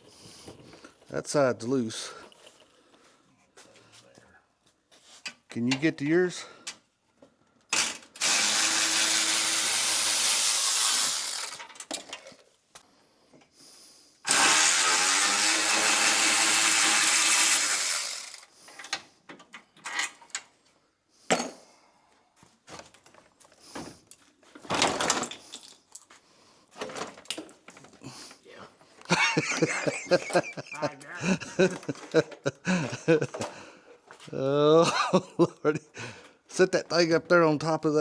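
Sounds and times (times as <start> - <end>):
clicks and knocks of parts: 7.7 - 8.2, 11.4 - 12.5, 18.2 - 20.5, 26.8 - 28.0
power tool spinning out bolts: 7.7 - 12.4, 14.3 - 18.5, 29.2 - 30.7.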